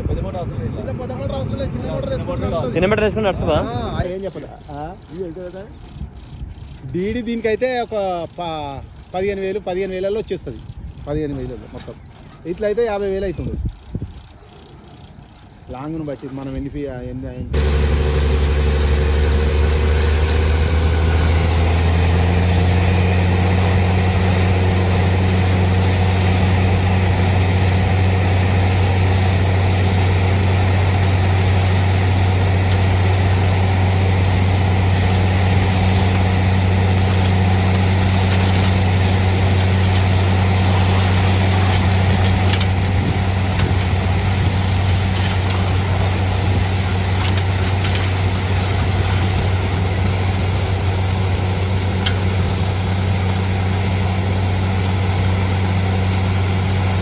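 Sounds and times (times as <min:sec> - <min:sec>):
drilling rig engine droning: 0:17.5 - 0:57.0.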